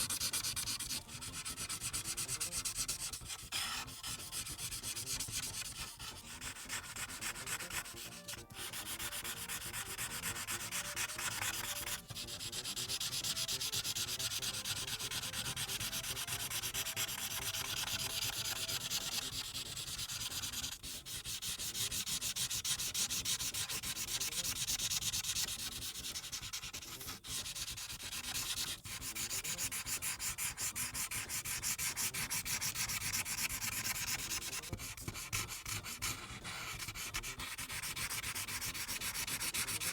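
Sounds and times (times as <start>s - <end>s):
marker rubbing on paper: 0.0s - 39.9s.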